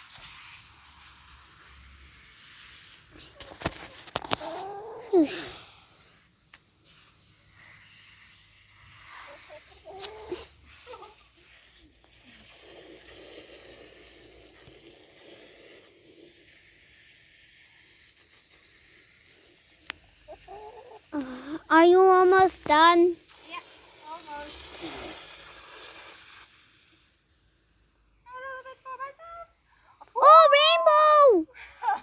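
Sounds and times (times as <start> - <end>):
water poured over hair: 6.8 - 20.6
short voice-like cry: 30.2 - 31.4.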